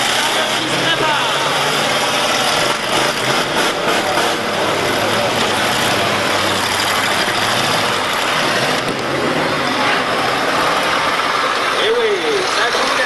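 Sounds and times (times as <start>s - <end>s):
many car engines running: 0.0s - 13.0s.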